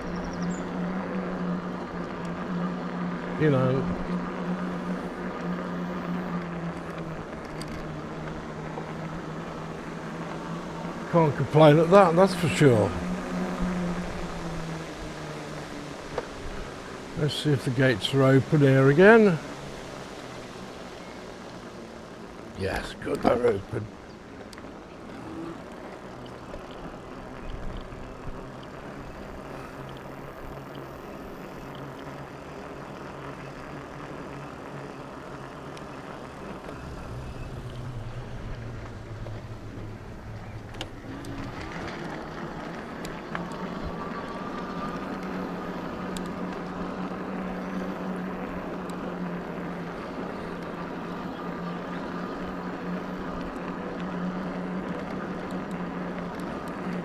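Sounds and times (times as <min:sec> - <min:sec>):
electric bike motor humming: 0:00.0 - 0:57.0
faint high whine: 0:00.0 - 0:57.0
tyre noise: 0:22.5 - 0:57.0.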